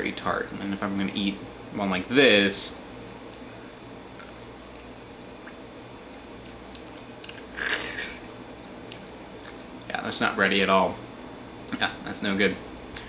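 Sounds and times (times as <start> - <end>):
wet chewing sounds: 8.8 - 9.7.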